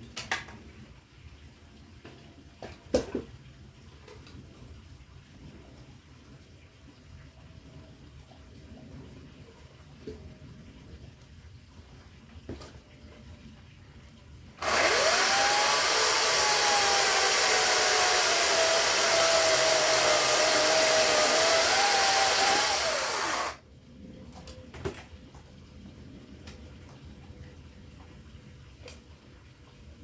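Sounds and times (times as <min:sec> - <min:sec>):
chainsaw cutting wood: 0:14.6 - 0:23.6.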